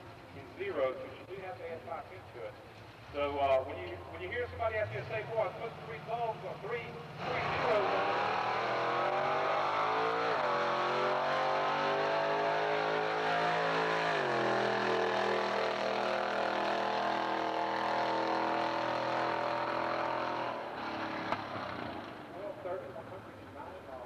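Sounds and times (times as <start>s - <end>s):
car engine at full throttle: 7.0s - 22.3s.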